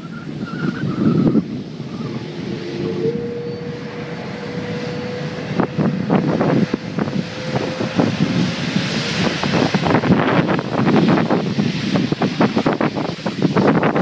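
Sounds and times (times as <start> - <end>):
jet engines running: 0.0 - 14.0
wind buffeting microphone: 0.0 - 14.0.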